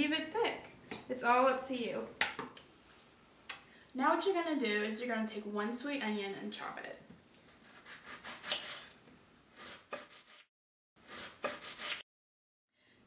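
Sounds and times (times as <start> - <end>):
knife scraping cutting board: 7.5 - 12.0.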